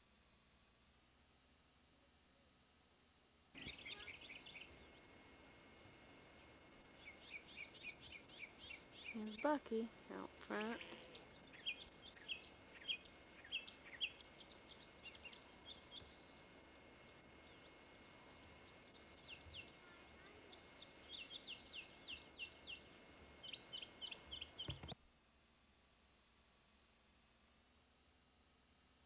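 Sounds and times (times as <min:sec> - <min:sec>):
faint hiss: 0:00.0 - 0:29.0
small birds chirping: 0:03.6 - 0:05.2, 0:06.3 - 0:25.0.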